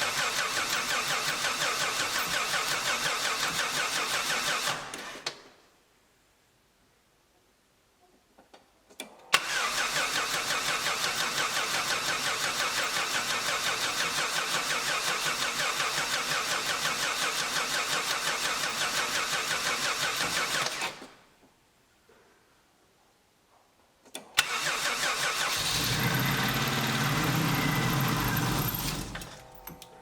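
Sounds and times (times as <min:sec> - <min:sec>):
starter motor cranking engine: 0:00.0 - 0:05.2, 0:09.4 - 0:21.1, 0:24.4 - 0:30.0
clicks: 0:28.8 - 0:30.0.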